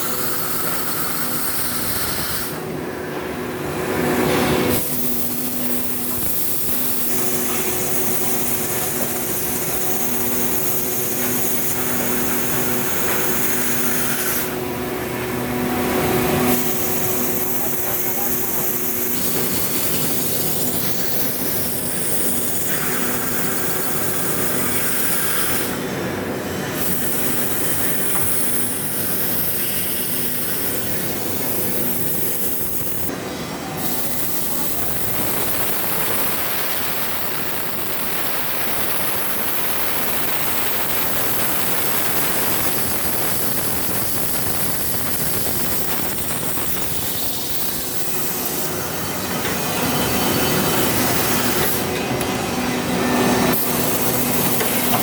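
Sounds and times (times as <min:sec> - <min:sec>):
drill grinding through steel: 0:16.1 - 0:25.8, 0:33.8 - 0:55.0.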